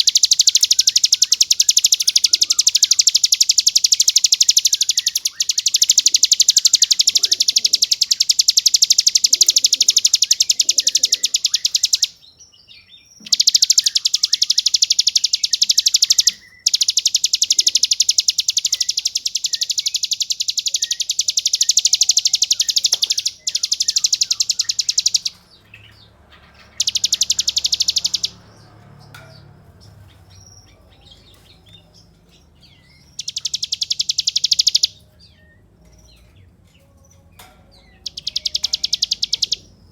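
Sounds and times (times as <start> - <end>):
bird buzzing trill: 0.0 - 12.2, 13.2 - 25.4, 26.7 - 28.4
faint bird chirps: 0.0 - 39.9.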